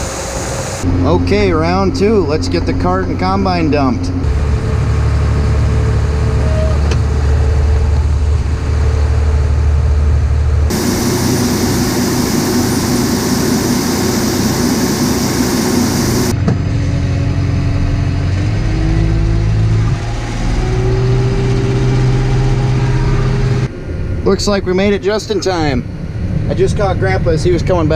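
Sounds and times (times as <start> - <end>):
heavy machinery engine droning: 0.0 - 24.2
loud even rushing noise: 10.7 - 16.4.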